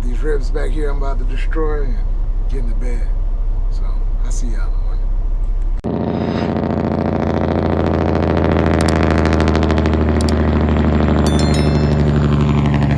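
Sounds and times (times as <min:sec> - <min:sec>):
high electronic tones: 0:11.3 - 0:12.4.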